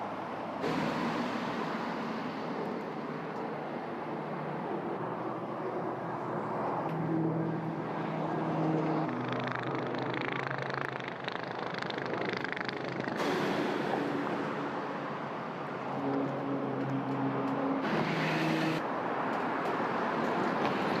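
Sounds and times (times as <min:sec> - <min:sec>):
loud rushing noise: 0:00.5 - 0:05.5, 0:13.2 - 0:16.0.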